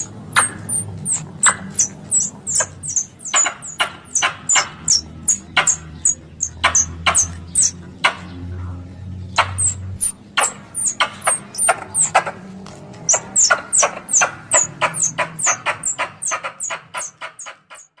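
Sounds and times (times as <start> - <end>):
squirrel call high chirps: 0.0 - 7.8, 9.4 - 12.3, 13.0 - 18.0.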